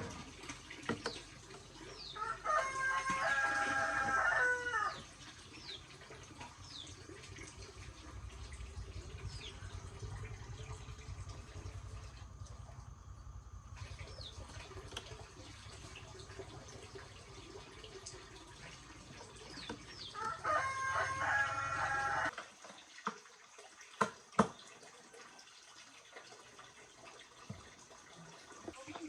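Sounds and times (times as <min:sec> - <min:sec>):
rooster crowing: 0:02.2 - 0:05.0, 0:20.2 - 0:22.3
steady low hum: 0:05.4 - 0:20.4.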